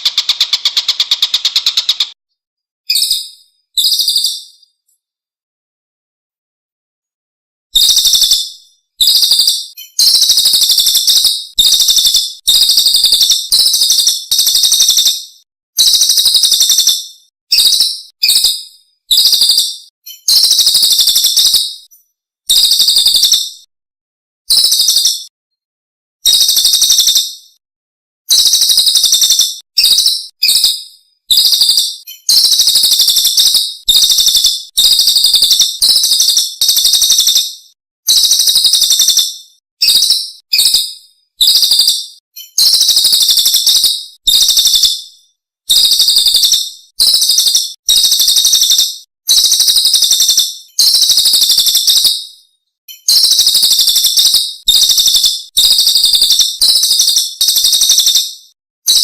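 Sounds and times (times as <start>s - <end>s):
songbird singing high phrases: 0.0s - 2.2s, 2.9s - 4.9s, 7.8s - 23.6s, 24.5s - 25.3s, 28.3s - 45.0s, 52.9s - 58.3s.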